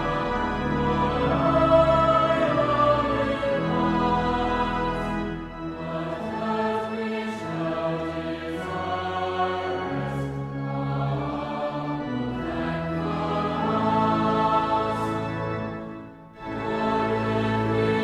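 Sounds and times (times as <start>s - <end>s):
choir singing: 0.0s - 18.0s.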